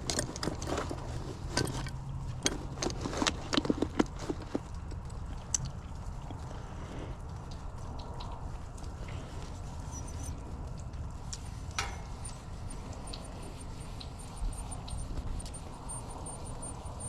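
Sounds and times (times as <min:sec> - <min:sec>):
low hum: 0:05.8 - 0:17.0.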